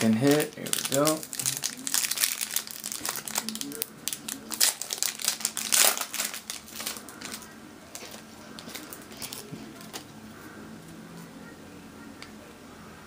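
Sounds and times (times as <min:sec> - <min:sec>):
plastic wrapper crinkling: 0:00.0 - 0:10.1.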